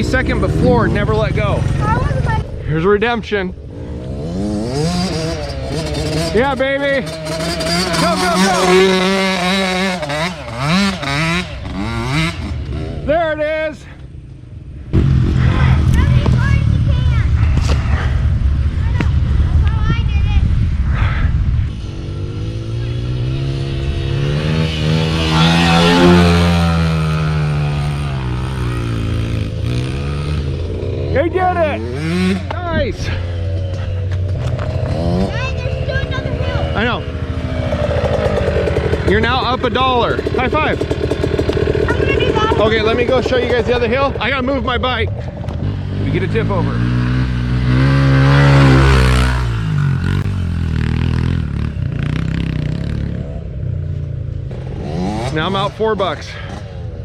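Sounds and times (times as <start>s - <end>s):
low engine drone: 0.0s - 6.4s, 20.4s - 47.0s
dirt bike engine revving: 0.0s - 13.6s, 21.0s - 57.0s
engine rattle: 33.2s - 44.2s.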